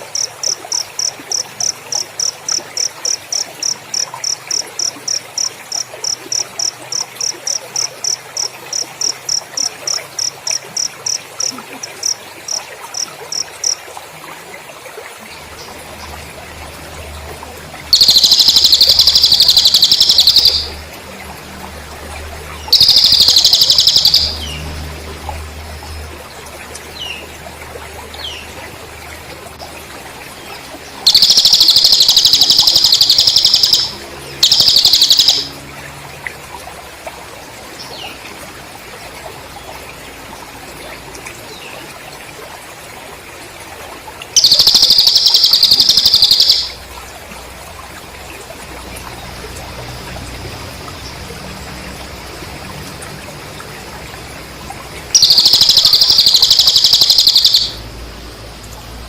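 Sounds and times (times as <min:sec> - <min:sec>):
cricket chirping: 0:00.0 - 0:13.9, 0:15.6 - 0:26.1, 0:31.0 - 0:35.9, 0:44.4 - 0:48.4, 0:49.0 - 0:59.0
bird warbling: 0:17.9 - 0:20.8, 0:22.7 - 0:24.6, 0:31.1 - 0:35.5, 0:44.4 - 0:46.8, 0:55.1 - 0:57.8.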